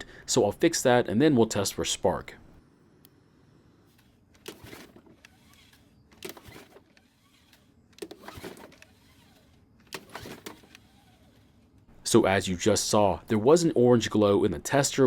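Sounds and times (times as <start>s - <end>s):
small engine whirring over: 3.9s - 11.8s
recoil starter rope pulled: 3.9s - 11.9s.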